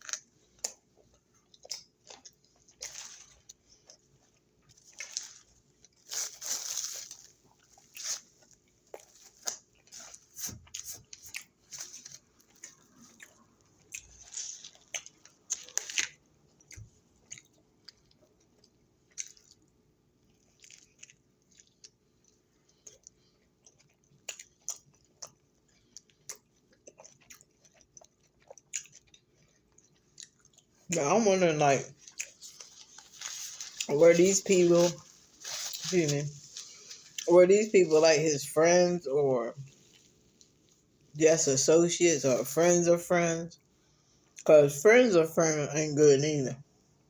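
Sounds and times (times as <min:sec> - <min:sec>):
person chewing crunchy food: 0:00.0 - 0:31.2, 0:31.8 - 0:37.3.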